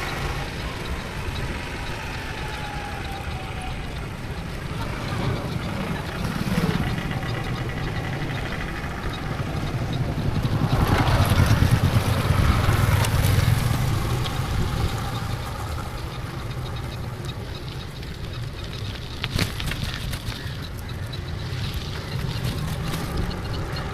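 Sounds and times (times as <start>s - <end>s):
motorcycle engine running: 0.0s - 23.9s
wind noise on microphone: 4.9s - 16.4s.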